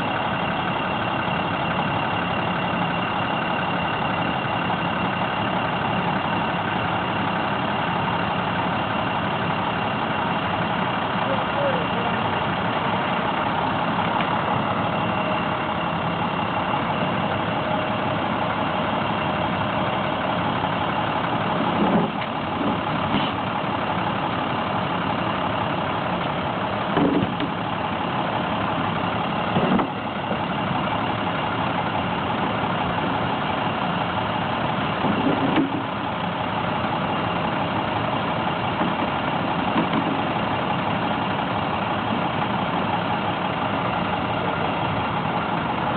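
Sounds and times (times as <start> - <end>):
truck engine running: 0.0 - 45.9
truck bumps: 21.6 - 23.4, 26.8 - 27.8, 29.4 - 30.2, 34.9 - 36.1, 38.6 - 40.5.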